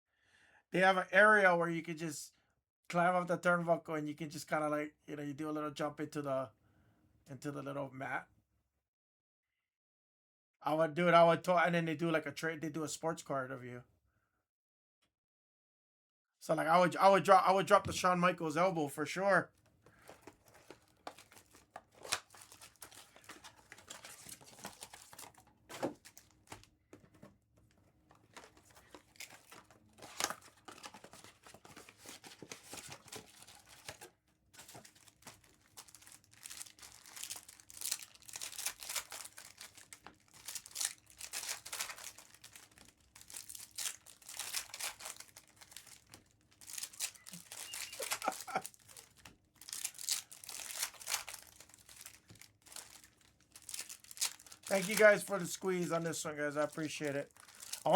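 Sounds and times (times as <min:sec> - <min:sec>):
card packs tearing open: 0:19.9 - 0:26.7, 0:28.1 - 0:57.9
wrappers crinkling: 0:19.9 - 0:57.9.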